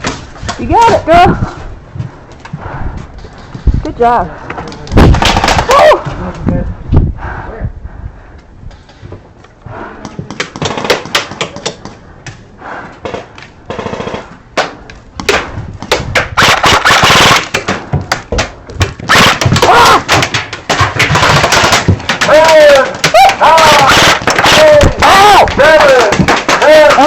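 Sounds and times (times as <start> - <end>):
airsoft guns firing: 5.0 - 5.8, 13.1 - 14.4, 16.2 - 17.8, 19.0 - 27.0.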